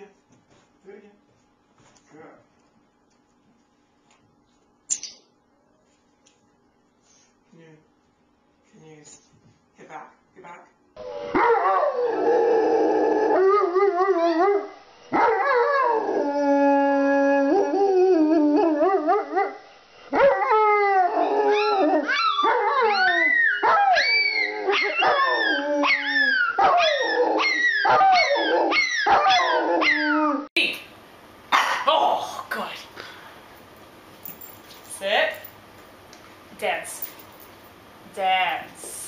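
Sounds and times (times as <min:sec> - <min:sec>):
small dog howling: 0:20.5 - 0:30.5
dog yipping and barking: 0:26.5 - 0:30.1.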